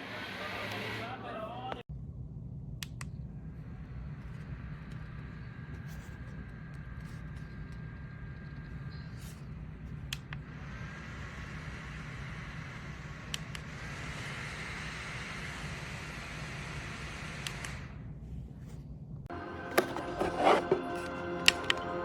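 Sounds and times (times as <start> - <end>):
steady low hum: 0.0 - 22.0
small fan motor whirring: 2.9 - 18.6.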